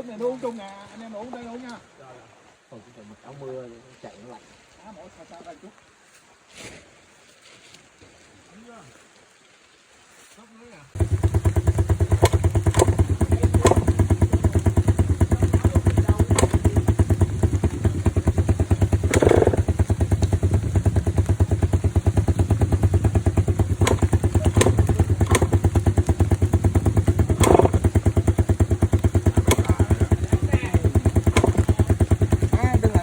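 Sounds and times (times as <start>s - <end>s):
sharp clicks and knocks: 11.0s - 18.2s, 18.9s - 20.4s, 23.5s - 30.2s, 31.0s - 32.5s
motorcycle engine idling: 11.0s - 33.0s.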